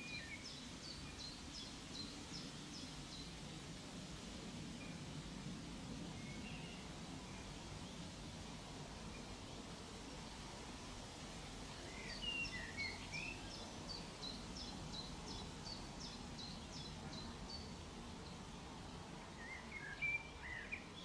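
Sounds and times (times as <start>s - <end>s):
lower bird chirps: 11.9s - 18.4s.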